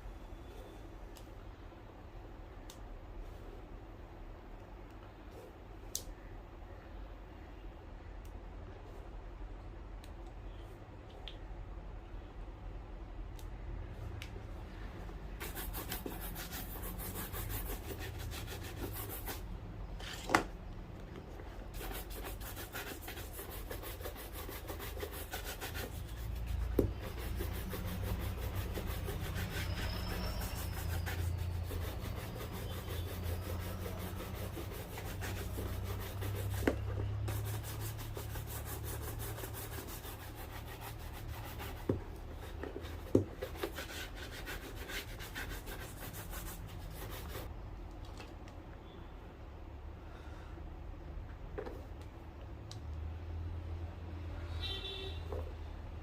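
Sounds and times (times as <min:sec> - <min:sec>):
shoe being rubbed: 0:15.4 - 0:19.5, 0:21.7 - 0:47.5.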